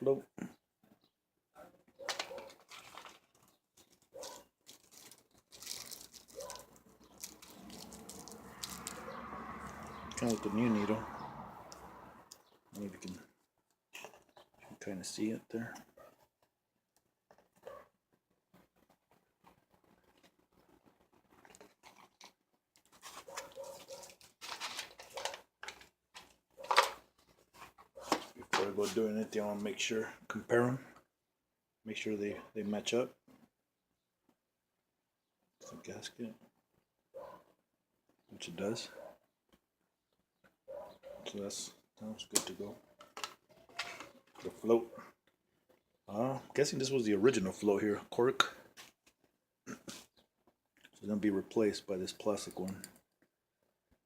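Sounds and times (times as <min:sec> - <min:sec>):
small parts rustling and clicking: 0:02.0 - 0:09.0, 0:19.8 - 0:28.6, 0:43.0 - 0:44.5
plastic packaging crinkling: 0:02.1 - 0:09.0, 0:21.4 - 0:27.1.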